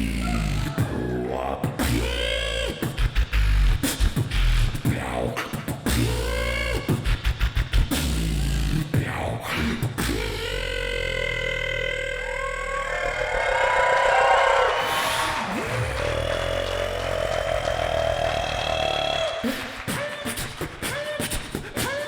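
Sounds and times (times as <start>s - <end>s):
pitched vocal swoop: 0.0s - 3.6s, 4.8s - 22.0s
beatboxed rapid clicks: 0.0s - 12.2s, 14.9s - 22.0s
beatboxing vocal bass wobbles: 0.0s - 13.9s, 14.8s - 22.0s
beatboxed kick drum hits: 0.6s - 10.7s.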